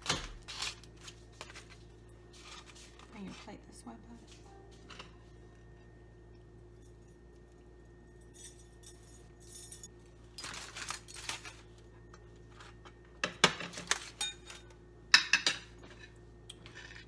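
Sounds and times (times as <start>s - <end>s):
utensils clinking on plate: 13.2s - 17.0s.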